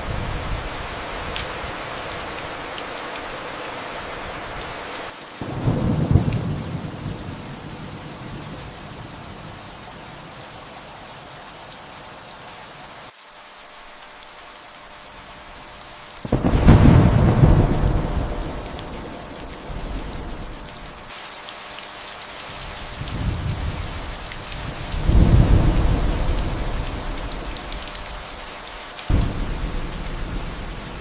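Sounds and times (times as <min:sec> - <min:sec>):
steady rain: 0:00.0 - 0:31.0
thunder rumbling: 0:05.4 - 0:09.8, 0:16.2 - 0:21.1, 0:22.9 - 0:28.5, 0:29.1 - 0:31.0.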